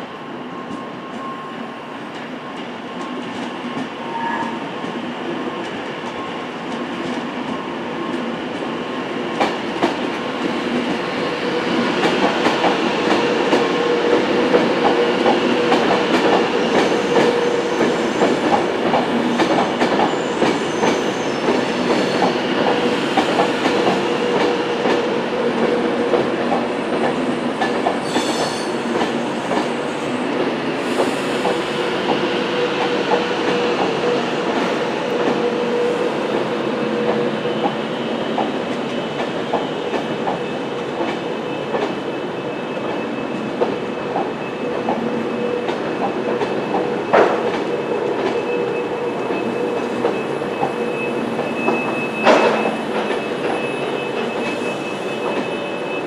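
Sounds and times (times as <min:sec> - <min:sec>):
train whine: 0:00.0 - 0:56.0.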